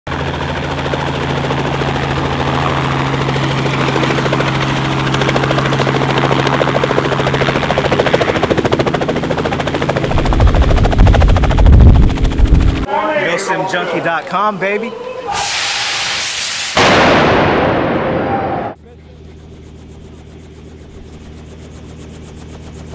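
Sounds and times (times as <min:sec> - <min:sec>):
helicopter rotor drone: 0:00.1 - 0:14.3, 0:18.3 - 0:22.9.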